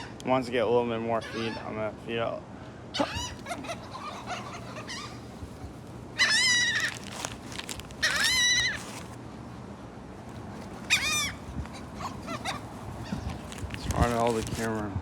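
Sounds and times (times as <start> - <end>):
seagulls calling: 1.1 - 1.8, 3.0 - 9.2, 10.2 - 14.7.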